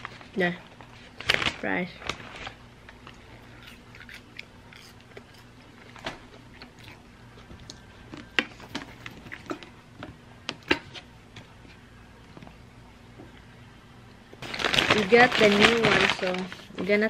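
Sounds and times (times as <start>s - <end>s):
person chewing fries: 3.0s - 9.8s.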